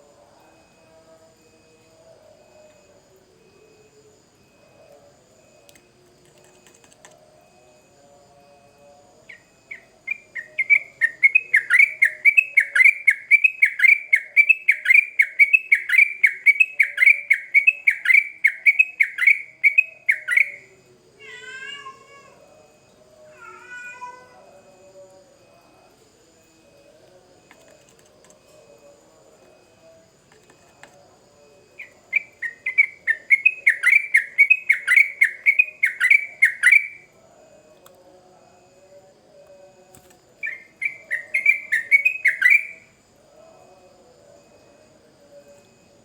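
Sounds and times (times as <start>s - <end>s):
bird whistled song: 9.8s - 20.6s, 31.8s - 37.0s, 40.4s - 42.8s.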